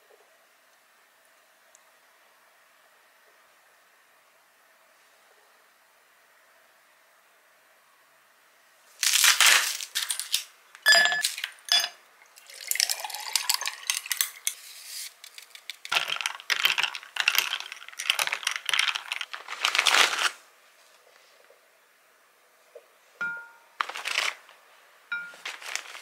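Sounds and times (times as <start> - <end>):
plastic snack bag rustling: 9.0 - 10.5, 14.6 - 20.4, 23.8 - 24.6, 25.3 - 26.0
ice cubes clinking into glass: 9.5 - 14.6, 15.3 - 19.3
liquid pouring over ice: 11.2 - 19.3
drink stirred with straw: 12.4 - 19.3.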